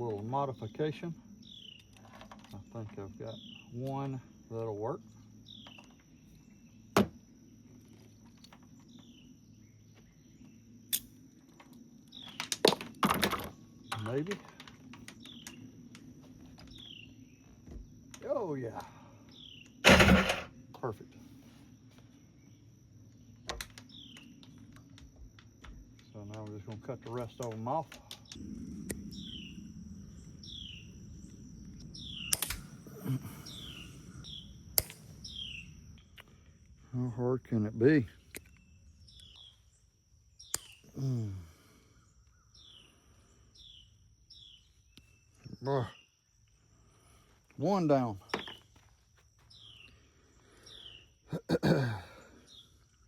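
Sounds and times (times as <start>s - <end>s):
faint high whine: 13.0s - 45.6s
low background rumble: 28.1s - 36.9s
sharp snap: 32.2s - 32.7s, 34.8s - 35.1s.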